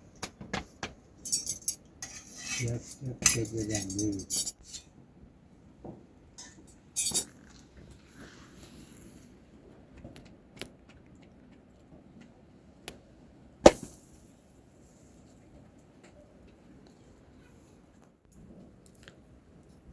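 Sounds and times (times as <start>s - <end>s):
kitchen utensils and dishes clinking: 1.2s - 4.8s, 6.4s - 7.4s.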